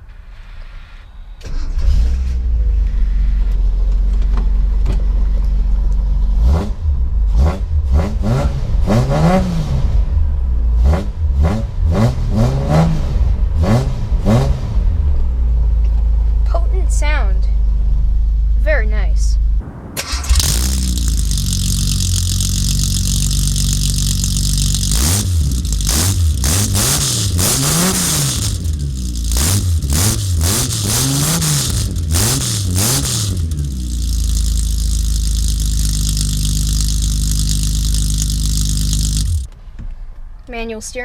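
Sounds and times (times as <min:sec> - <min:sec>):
engine revving in throttle blips: 0:06.3 - 0:15.3, 0:19.6 - 0:39.5
car engine idling: 0:19.6 - 0:39.5.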